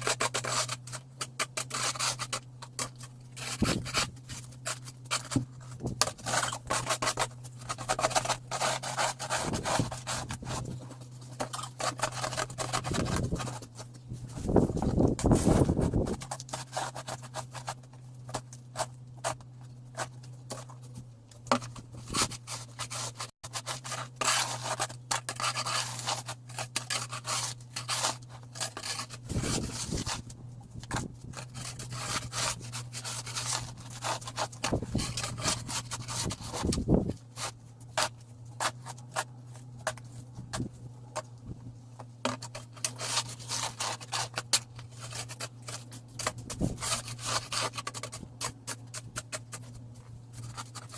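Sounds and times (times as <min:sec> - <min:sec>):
steady low hum: 0:00.0 - 0:50.9
snow shovel scraping pavement: 0:05.8 - 0:17.8.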